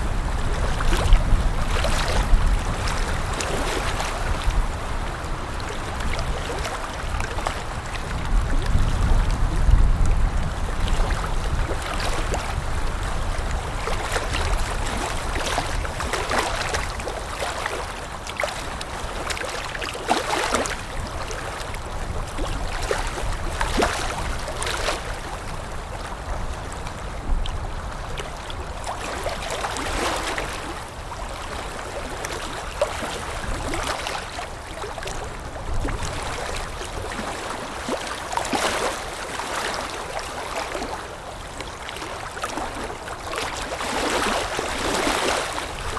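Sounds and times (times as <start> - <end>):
low wind rumble: 0.0 - 16.1
water lapping: 0.0 - 45.9.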